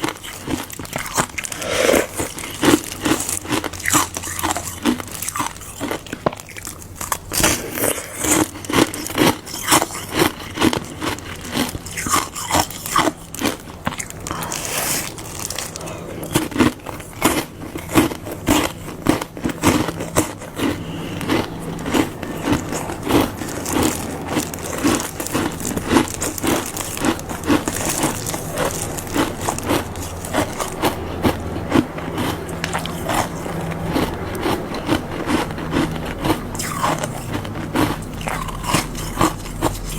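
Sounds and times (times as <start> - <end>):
ice being crunched: 0.0 - 17.4.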